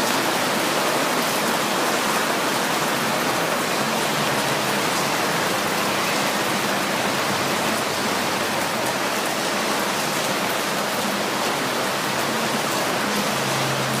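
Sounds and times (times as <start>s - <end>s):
heavy rain on hard surfaces: 0.0s - 14.0s.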